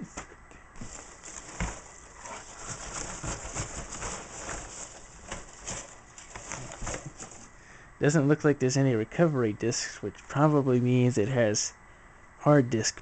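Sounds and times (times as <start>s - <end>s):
packing material rustling: 0.8s - 7.6s.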